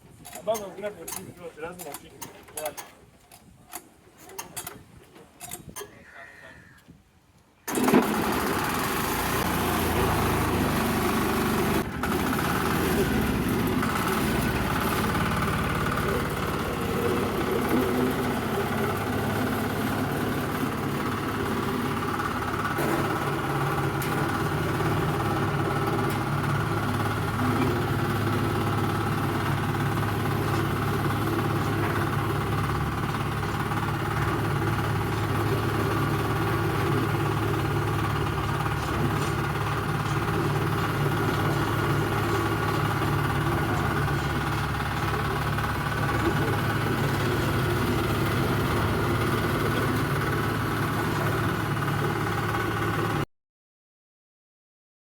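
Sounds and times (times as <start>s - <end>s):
diesel engine running: 7.7s - 53.2s.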